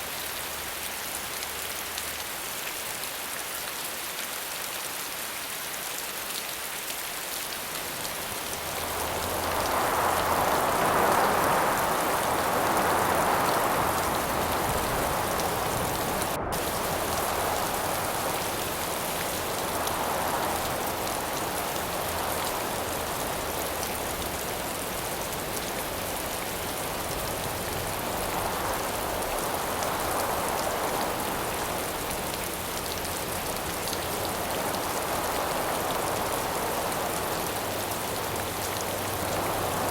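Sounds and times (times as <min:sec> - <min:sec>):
rain falling: 0:00.0 - 0:39.9
wind gusts: 0:07.4 - 0:39.9.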